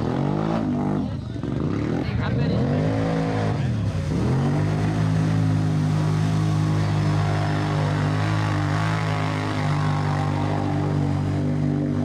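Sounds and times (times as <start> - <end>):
engine revving hard: 0.0 - 12.0.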